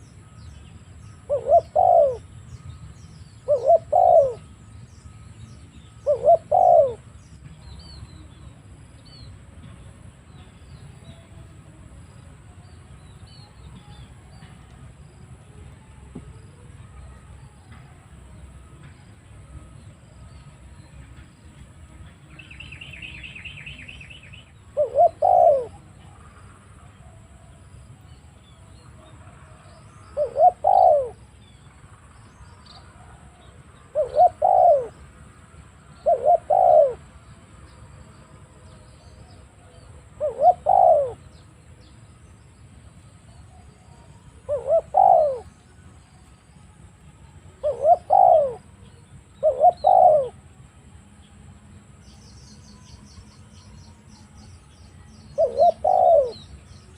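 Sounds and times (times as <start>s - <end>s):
dove cooing: 1.2s - 2.4s, 3.4s - 4.6s, 6.0s - 7.2s, 24.6s - 26.2s, 29.4s - 31.3s, 33.0s - 35.1s, 36.0s - 37.2s, 39.2s - 41.3s, 43.6s - 45.8s, 47.6s - 48.8s, 49.4s - 50.4s, 55.3s - 56.5s.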